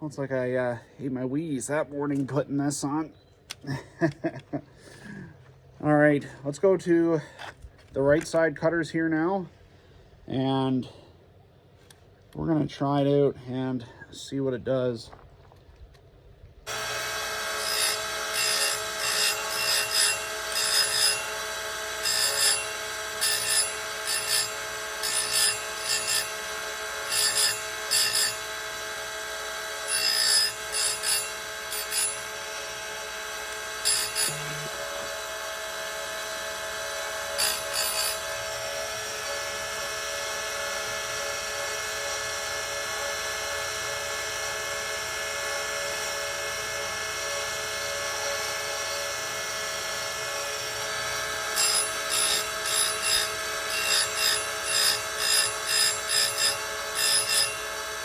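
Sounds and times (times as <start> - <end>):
grinder motor whine: 16.6 - 58.0
grinding metal bursts: 16.7 - 45.3, 45.9 - 58.0.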